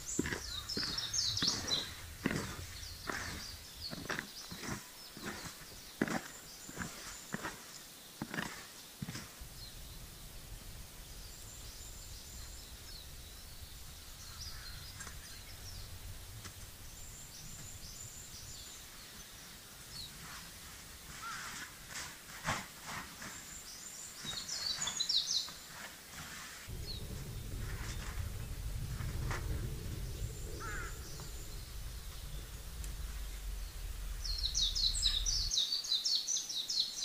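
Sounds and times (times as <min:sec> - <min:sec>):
low outdoor rumble: 0:00.0 - 0:06.6, 0:09.4 - 0:21.1, 0:26.7 - 0:36.0
sharp knocks and rustles: 0:00.0 - 0:09.4, 0:20.2 - 0:23.6
songbirds chirping and trilling: 0:00.0 - 0:37.0.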